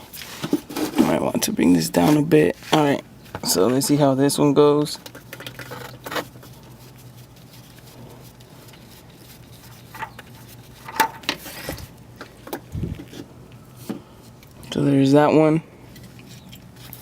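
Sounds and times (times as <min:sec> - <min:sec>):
steady low hum: 0:00.0 - 0:17.0
oil filter clicks and scrapes: 0:05.0 - 0:14.8, 0:15.9 - 0:17.0.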